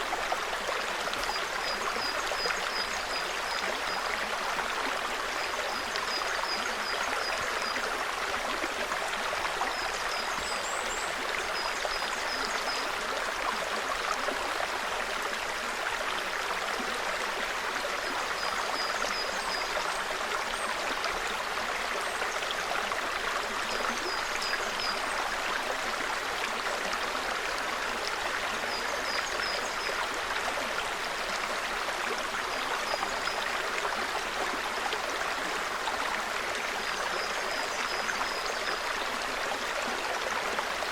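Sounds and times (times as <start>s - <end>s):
brook babbling over stones: 0.0s - 40.9s.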